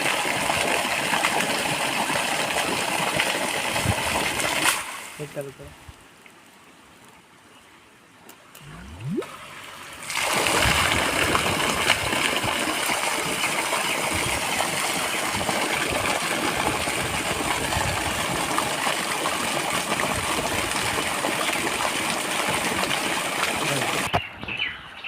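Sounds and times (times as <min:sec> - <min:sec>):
water gushing from pump: 0:00.0 - 0:05.5, 0:08.6 - 0:24.2.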